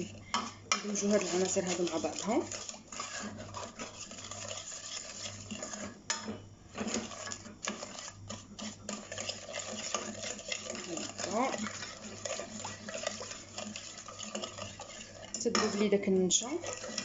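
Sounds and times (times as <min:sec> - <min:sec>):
utensil scraping a saucepan: 0:00.0 - 0:17.0
utensil clinking against pan: 0:05.5 - 0:16.0.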